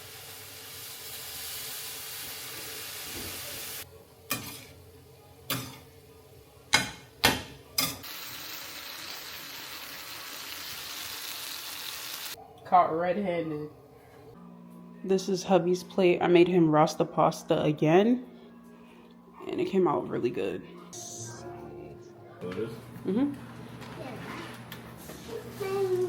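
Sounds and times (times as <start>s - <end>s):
food sizzling in frying pan: 0.0s - 4.7s, 8.0s - 12.4s.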